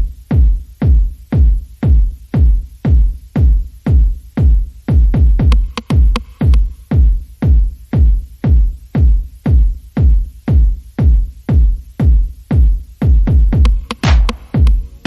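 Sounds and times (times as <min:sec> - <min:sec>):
heavy bass drum beat: 0:00.0 - 0:15.0
electronic background music: 0:13.1 - 0:15.0.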